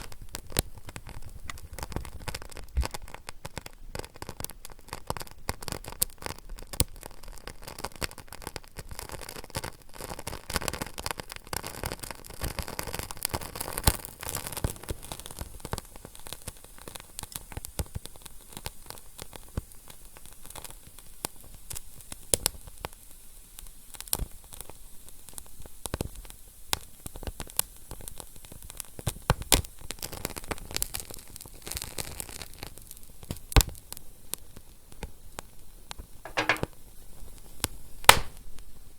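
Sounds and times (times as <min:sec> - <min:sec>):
fire crackling: 0:38.1 - 0:38.8.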